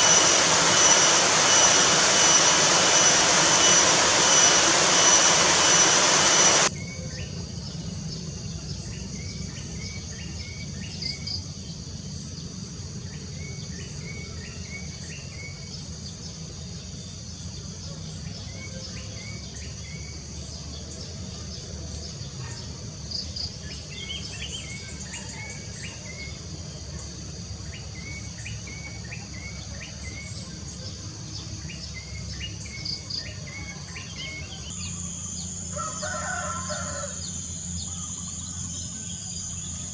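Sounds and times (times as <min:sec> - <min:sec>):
loud rushing noise: 0:00.0 - 0:06.7
crickets chirping: 0:31.8 - 0:39.9.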